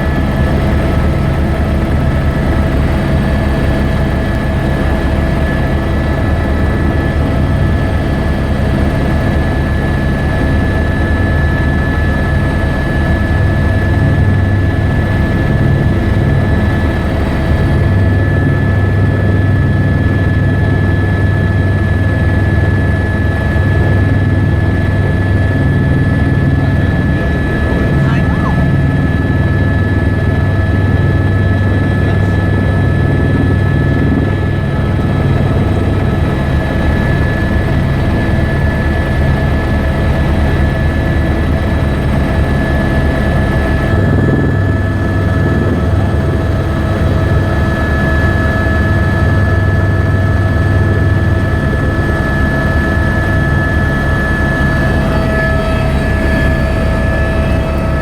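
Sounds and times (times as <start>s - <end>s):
helicopter rotor and engine drone: 0.0s - 58.0s
high whine: 26.2s - 30.0s, 53.8s - 58.0s.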